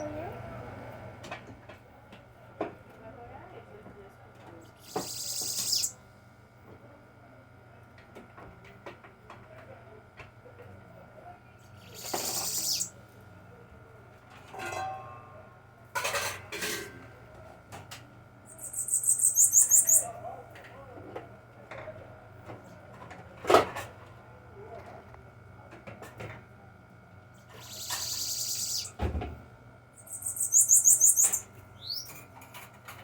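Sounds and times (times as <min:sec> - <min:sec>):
bird singing high trill: 0:04.8 - 0:05.9, 0:11.9 - 0:12.9, 0:18.5 - 0:20.1, 0:27.6 - 0:28.9, 0:30.0 - 0:32.1
hissing rustles: 0:04.8 - 0:05.9.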